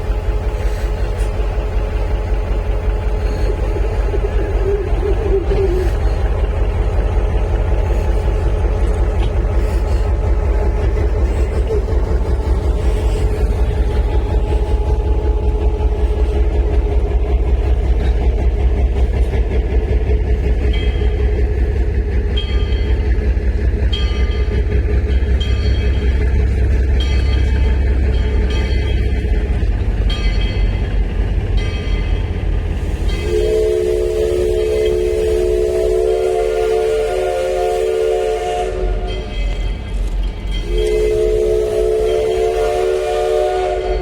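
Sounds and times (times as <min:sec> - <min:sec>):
train locomotive rumbling: 0:00.0 - 0:44.0.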